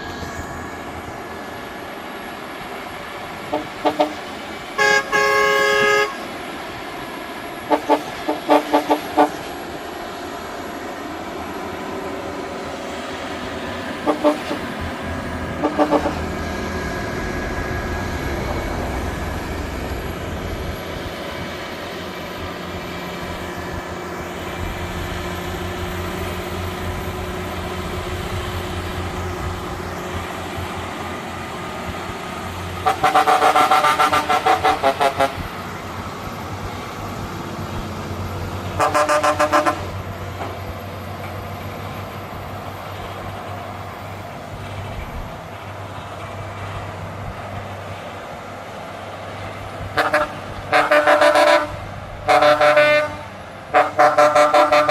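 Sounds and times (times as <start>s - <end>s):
truck engine running: 0.0s - 54.9s
truck horn blasts: 3.5s - 6.4s, 7.6s - 9.6s, 14.0s - 14.8s, 15.5s - 16.5s, 32.8s - 35.6s, 38.7s - 40.1s, 49.9s - 54.9s.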